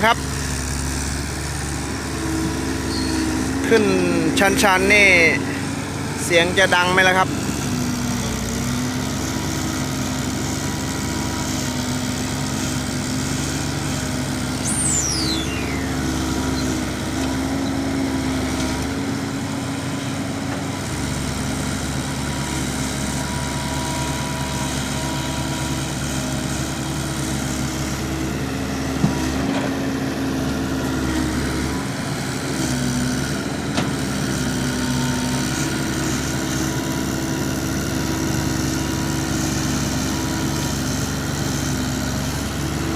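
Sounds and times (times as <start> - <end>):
truck diesel engine under load: 0.0 - 42.9
high falling whistle: 14.6 - 16.7.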